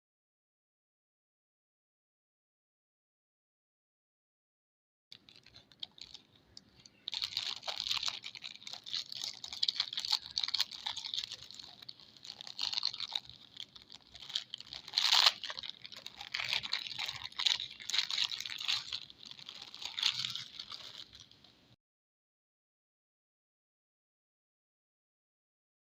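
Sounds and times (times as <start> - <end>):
packaging crinkling: 5.1 - 21.5.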